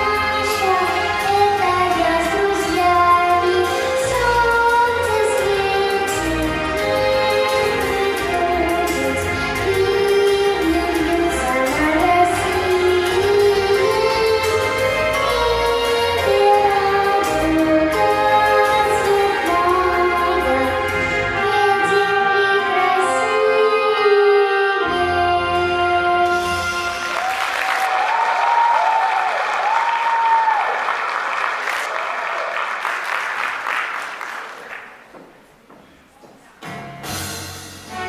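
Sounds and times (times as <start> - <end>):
recorded stage music: 0.0 - 38.0
audience applause: 27.0 - 35.5.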